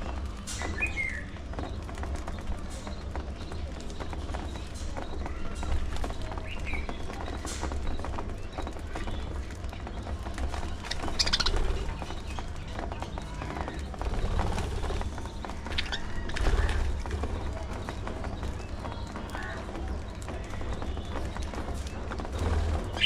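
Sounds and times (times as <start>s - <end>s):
budgerigars chirping: 10.9s - 11.7s.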